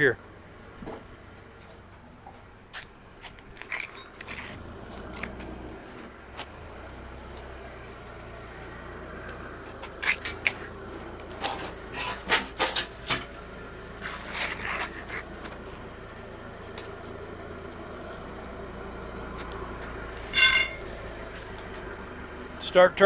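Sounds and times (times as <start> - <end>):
forklift engine running: 0.0 - 23.0
metallic clanks and rattles: 9.8 - 13.4, 20.2 - 21.5.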